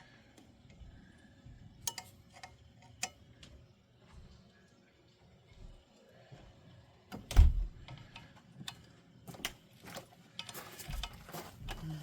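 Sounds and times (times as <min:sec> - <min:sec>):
tools clicking and tapping: 0:01.8 - 0:03.5, 0:07.8 - 0:11.9.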